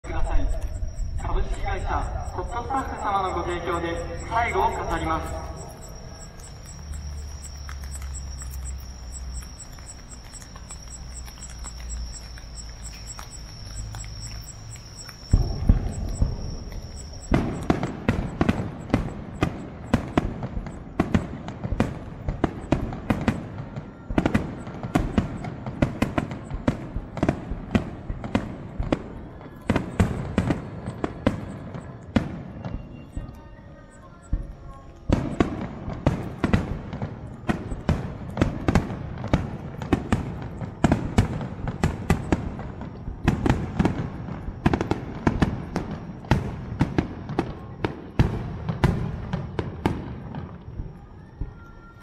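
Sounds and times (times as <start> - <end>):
low hum: 0.0 - 19.4
steady high tone: 0.0 - 20.1
fireworks bursting: 0.0 - 33.3, 34.3 - 51.0.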